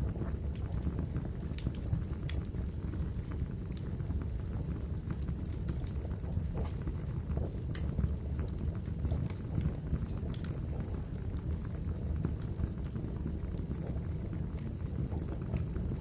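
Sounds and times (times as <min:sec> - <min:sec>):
campfire low rumble: 0:00.0 - 0:16.0
crackles and pops of burning logs: 0:00.0 - 0:16.0.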